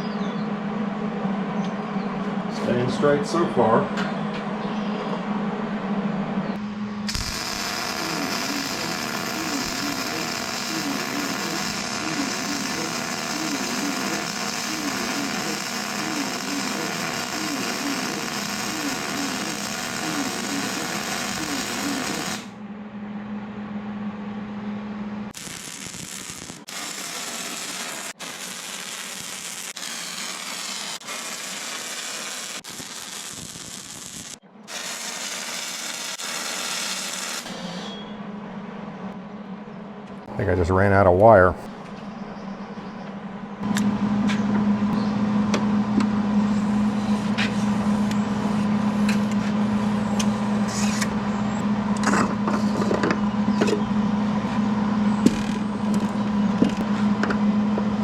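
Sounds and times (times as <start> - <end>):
welder hum: 6.6 - 22.6, 25.3 - 37.9
welding arc crackling and popping: 7.1 - 22.5, 25.3 - 37.5.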